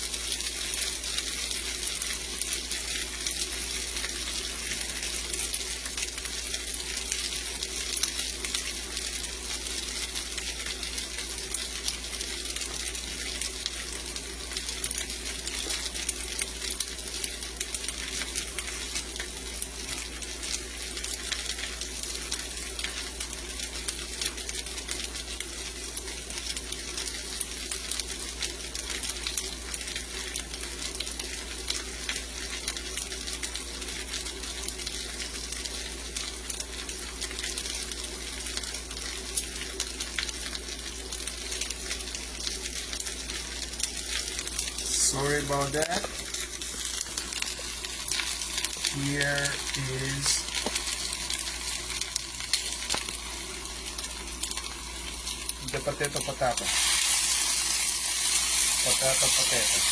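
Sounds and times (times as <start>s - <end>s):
potatoes frying in oil: 0.0s - 59.9s
low steady hum: 43.8s - 59.9s.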